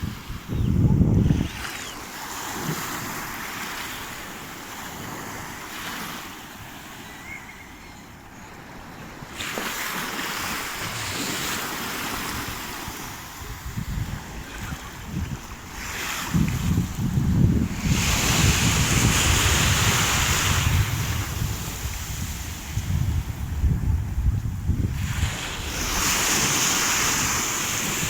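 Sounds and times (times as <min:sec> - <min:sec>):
wind buffeting microphone: 0:00.0 - 0:01.8, 0:12.1 - 0:28.0
waves washing onto shore: 0:01.2 - 0:28.0.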